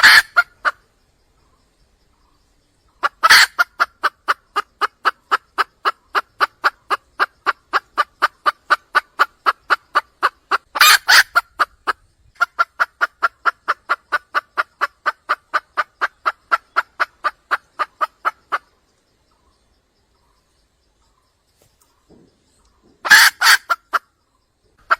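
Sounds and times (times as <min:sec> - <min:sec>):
hen clucking: 0:00.0 - 0:00.8, 0:02.9 - 0:19.4, 0:21.9 - 0:24.9
harsh hen call: 0:23.0 - 0:24.0.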